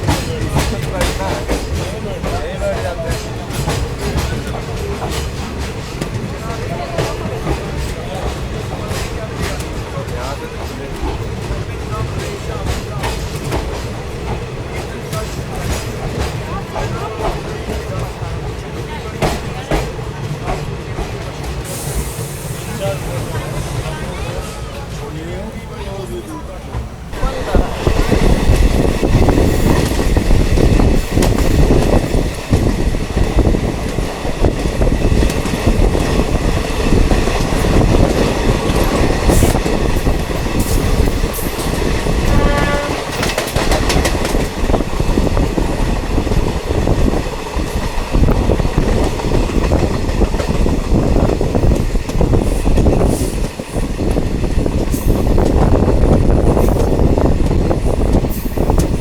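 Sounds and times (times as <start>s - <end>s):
train rumble: 0.0s - 59.0s
wheels clattering over rail joints: 26.2s - 59.0s.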